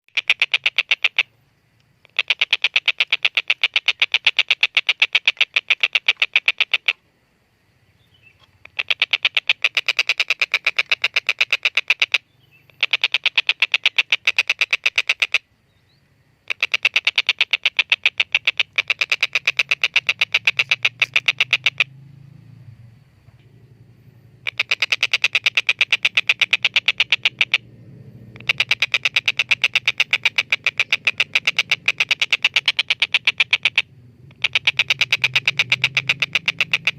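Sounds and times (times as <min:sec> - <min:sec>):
kingfisher cackling: 0:00.1 - 0:01.3, 0:02.0 - 0:07.0, 0:08.6 - 0:15.4, 0:16.4 - 0:22.0, 0:24.3 - 0:27.7, 0:28.3 - 0:36.9
low hum: 0:18.6 - 0:34.4.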